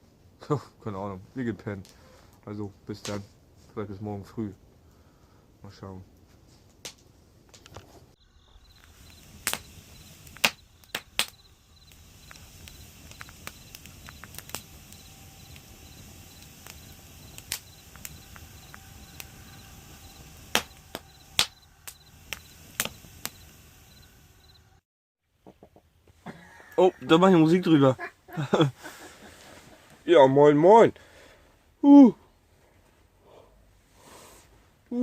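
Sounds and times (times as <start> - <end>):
campfire hissing: 1.4 - 3.9, 4.7 - 24.8, 26.4 - 32.1, 33.2 - 35.0
campfire pops and cracks: 6.7 - 24.6.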